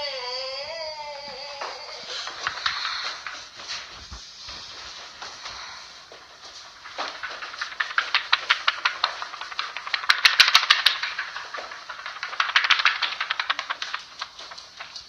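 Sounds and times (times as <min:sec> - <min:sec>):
rapid sharp clicking: 0:04.7 - 0:15.0.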